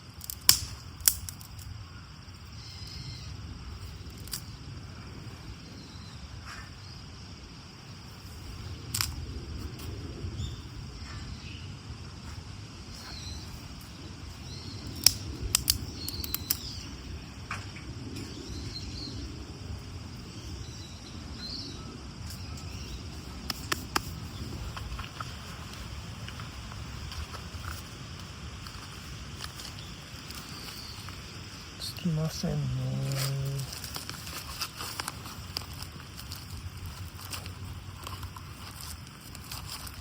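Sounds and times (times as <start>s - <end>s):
campfire snapping: 0.0s - 1.8s, 8.8s - 9.8s, 14.7s - 16.9s, 22.2s - 40.0s.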